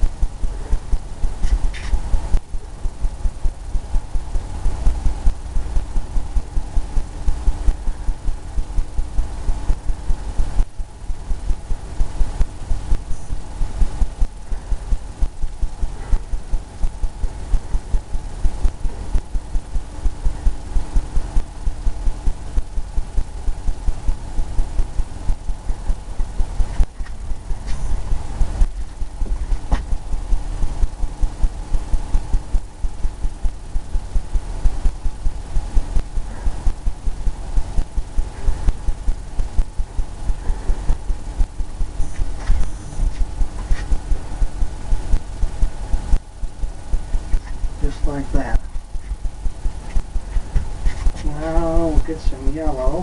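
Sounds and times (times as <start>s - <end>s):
paintbrush dabbing on canvas: 42.1s - 44.1s, 47.2s - 52.6s.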